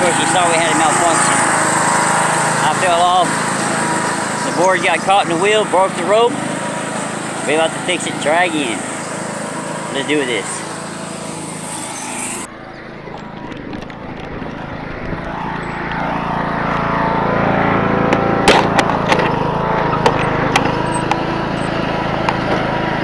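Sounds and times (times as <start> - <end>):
car engine running: 0.0 - 23.0
sharp clicks and knocks: 18.1 - 19.4, 20.0 - 21.2.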